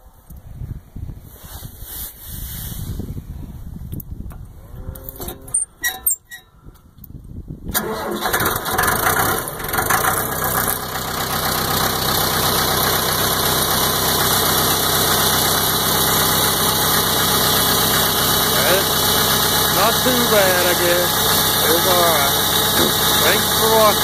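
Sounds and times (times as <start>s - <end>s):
diesel engine starting and idling: 7.7s - 24.0s.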